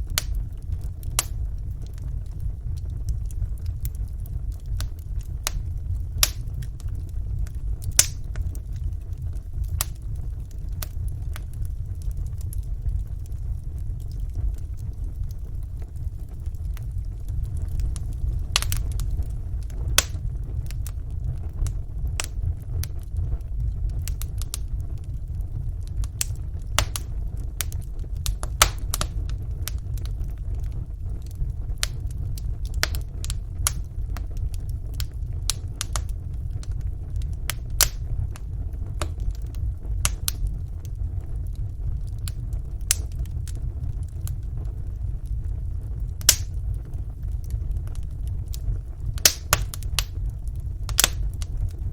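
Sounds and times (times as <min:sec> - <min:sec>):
fire crackling and popping: 0:00.0 - 0:51.9
wood fire rumbling: 0:00.0 - 0:51.9.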